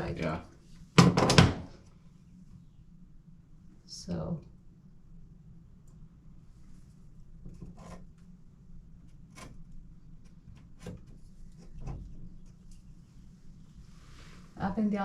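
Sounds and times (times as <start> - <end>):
low steady hum: 0.0 - 15.0
light knocks and scrapes on wall: 7.4 - 8.1.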